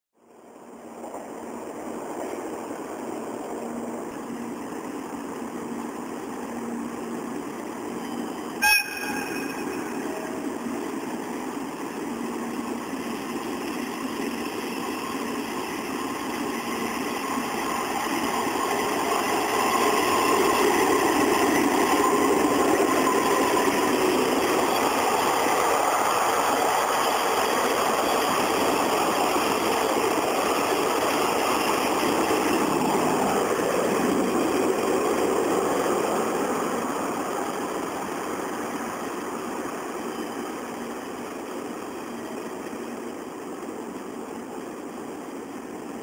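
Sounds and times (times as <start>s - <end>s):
train running on rails: 0.2s - 46.0s
train horn blast: 8.6s - 10.0s.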